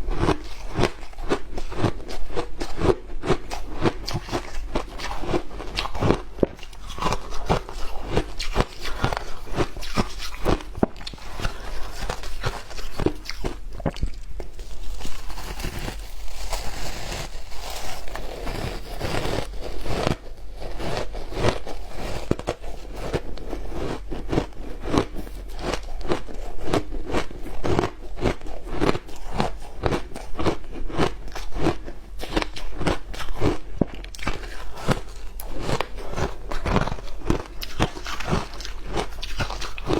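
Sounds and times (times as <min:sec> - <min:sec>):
ice being chewed with crunches: 0:00.0 - 0:39.9.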